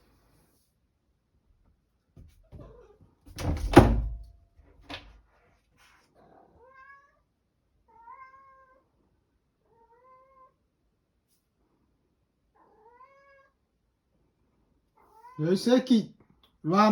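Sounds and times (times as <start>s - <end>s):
cat thunk against door: 3.3s - 4.3s
cat meowing: 6.3s - 7.3s, 7.9s - 8.9s, 9.7s - 10.6s, 12.6s - 13.6s.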